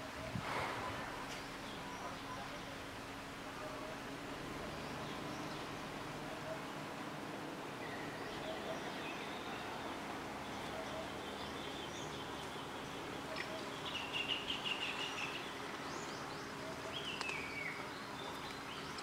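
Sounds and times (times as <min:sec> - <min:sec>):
outdoor background hiss: 0:00.0 - 0:19.0
birds calling: 0:07.7 - 0:19.0.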